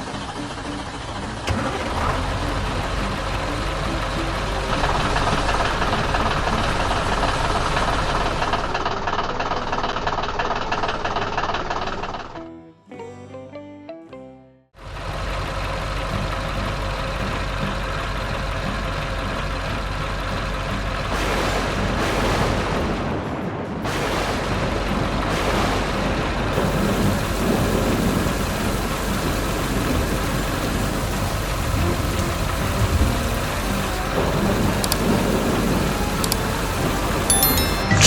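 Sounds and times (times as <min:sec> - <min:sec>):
heavy vehicle engine running: 0:00.0 - 0:12.2, 0:14.8 - 0:23.0, 0:24.5 - 0:37.3
dense rushing noise: 0:21.1 - 0:34.8.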